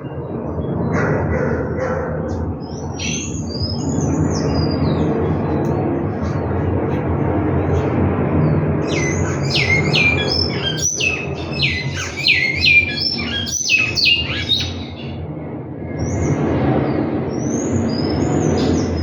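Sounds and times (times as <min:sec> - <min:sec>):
low background rumble: 0:00.0 - 0:12.2
bird singing whistled notes: 0:08.8 - 0:15.1.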